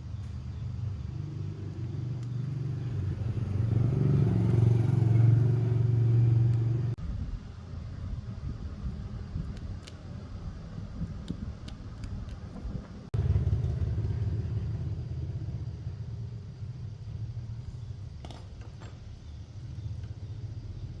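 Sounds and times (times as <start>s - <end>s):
light clicks: 9.4s - 10.2s.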